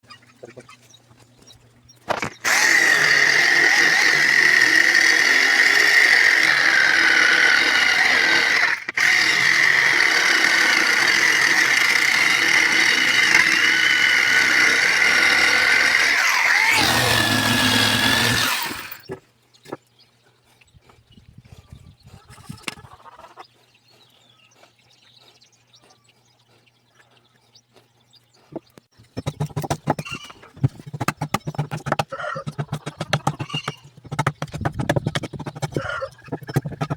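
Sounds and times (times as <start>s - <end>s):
rotary carving tool whining on wood: 2.2s - 19.1s.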